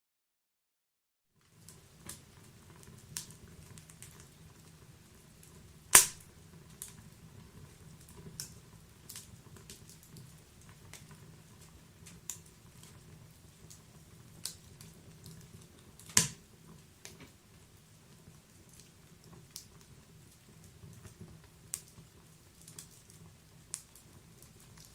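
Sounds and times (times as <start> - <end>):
wood fire crackling: 1.4 - 24.9
sharp loud pops of fire: 5.9 - 6.3, 16.0 - 16.4.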